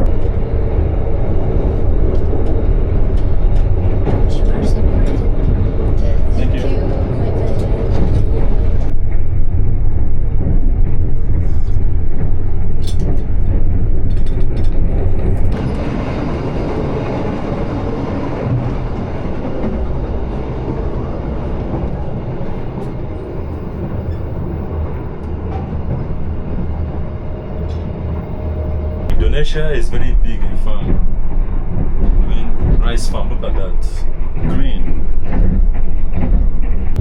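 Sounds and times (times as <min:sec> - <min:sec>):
train rumbling on rails: 0:00.0 - 0:37.0.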